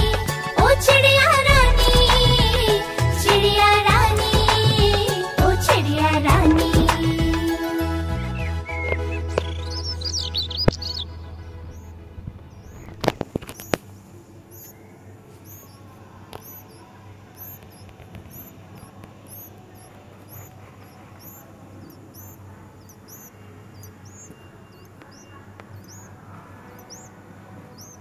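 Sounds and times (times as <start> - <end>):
low steady hum: 0.6 - 8.0
fledgling bird cheeping: 6.3 - 11.9, 12.5 - 13.9, 14.5 - 28.0.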